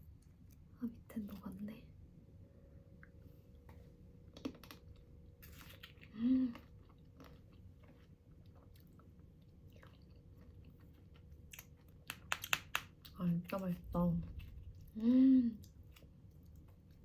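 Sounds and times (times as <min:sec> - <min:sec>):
quiet chewing: 0:03.0 - 0:17.0
pleased hum: 0:13.4 - 0:16.0.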